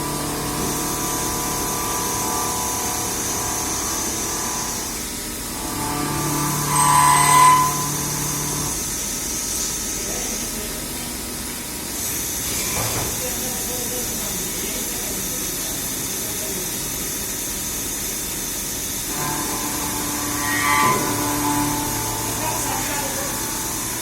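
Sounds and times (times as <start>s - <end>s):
machinery humming: 0.0s - 11.0s, 18.9s - 24.0s.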